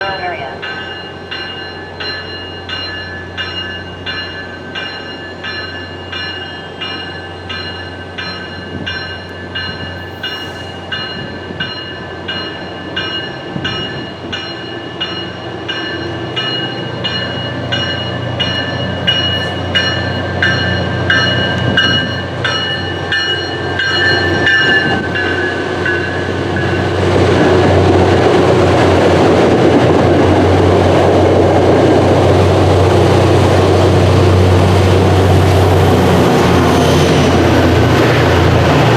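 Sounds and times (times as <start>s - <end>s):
train bell ringing: 0.0s - 38.9s
train running noise: 0.0s - 38.9s.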